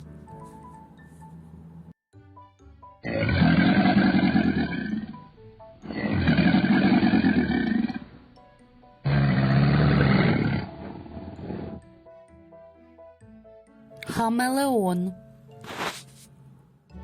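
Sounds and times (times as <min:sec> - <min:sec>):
crocodile growling: 0:03.0 - 0:08.2, 0:09.0 - 0:11.8.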